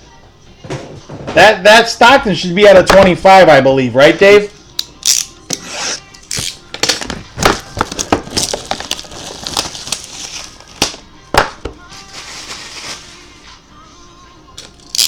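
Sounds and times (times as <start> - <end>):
wrapper crinkling: 6.3 - 11.0, 11.8 - 13.5.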